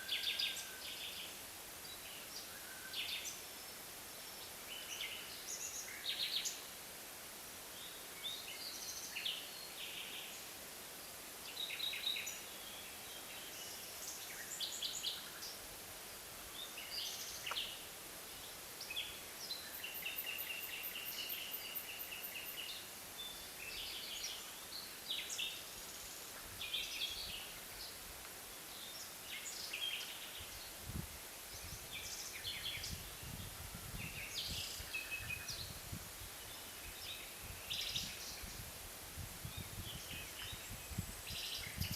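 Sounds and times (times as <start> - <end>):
small birds chirping: 7.7 - 35.8, 36.4 - 38.7, 39.4 - 41.9.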